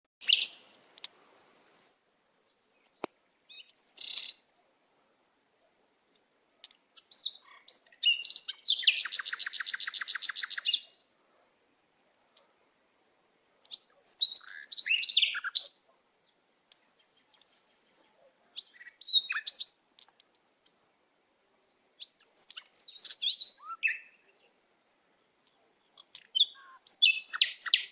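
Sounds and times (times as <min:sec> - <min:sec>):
songbird chirping: 0:00.2 - 0:27.9
rapid bird trill: 0:26.3 - 0:27.9.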